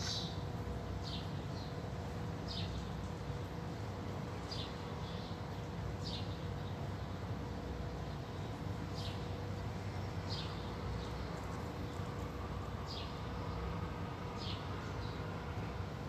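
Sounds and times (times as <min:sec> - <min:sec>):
small bird chirping: 0:00.0 - 0:00.4
steady low hum: 0:00.0 - 0:16.0.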